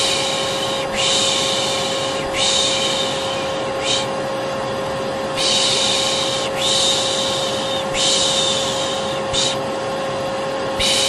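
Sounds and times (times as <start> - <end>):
person shushing: 0.0 - 4.2, 5.4 - 9.6
vacuum cleaner running: 0.0 - 11.0.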